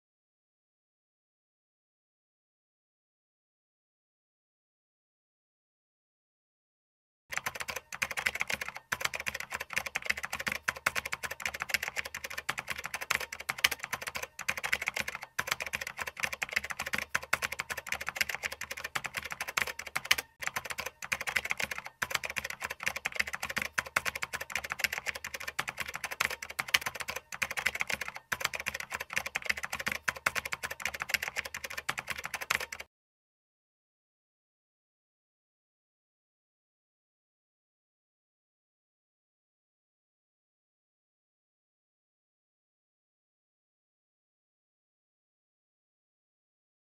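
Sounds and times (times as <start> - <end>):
keyboard typing clatter: 7.3 - 32.9.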